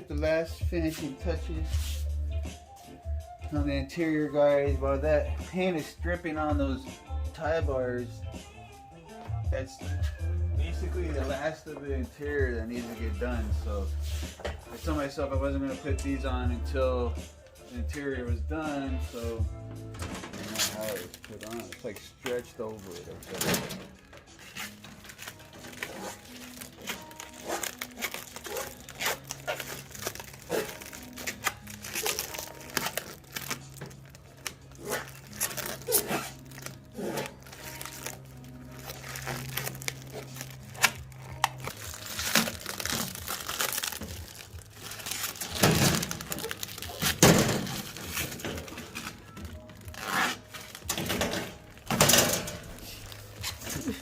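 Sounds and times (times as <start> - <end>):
material crinkling and rustling: 20.2 - 54.0.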